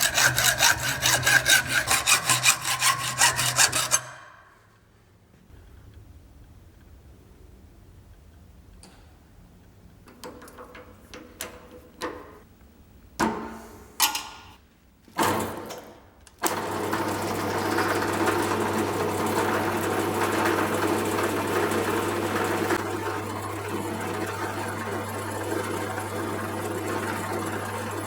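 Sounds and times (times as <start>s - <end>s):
electric power tool humming: 0.0s - 4.1s.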